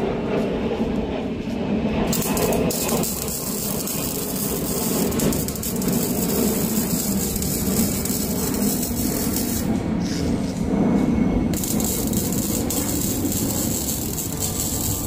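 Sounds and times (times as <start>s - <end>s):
power tool grinding steel: 2.2s - 9.8s, 11.6s - 15.0s.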